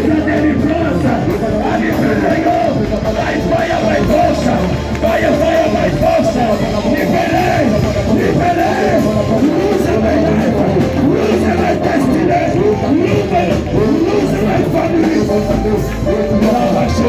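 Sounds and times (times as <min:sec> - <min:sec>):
band playing: 0:00.0 - 0:17.0
voices singing worship music: 0:00.0 - 0:17.0.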